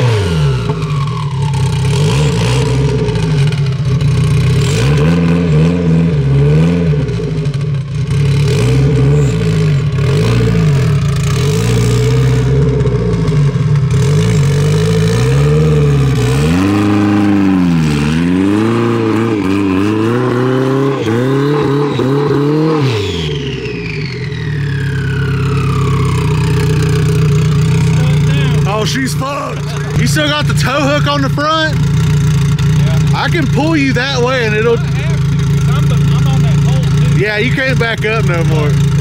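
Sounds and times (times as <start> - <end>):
car engine revving: 0.0 - 39.0
high-pitched whine: 18.6 - 31.8.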